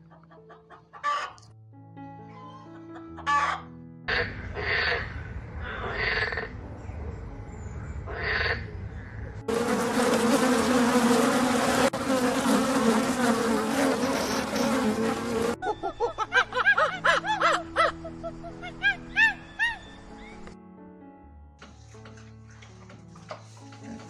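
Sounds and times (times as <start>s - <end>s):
insect wings buzzing: 9.5s - 15.6s.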